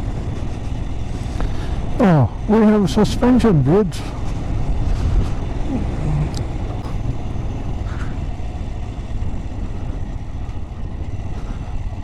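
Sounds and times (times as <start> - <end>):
motorcycle engine rumble: 0.0 - 12.0
wind noise: 4.0 - 12.0.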